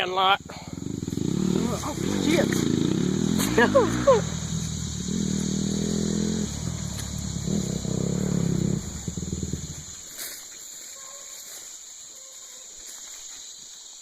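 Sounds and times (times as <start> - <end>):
insects buzzing: 0.0 - 14.0
small vehicle engine revving: 0.4 - 10.2.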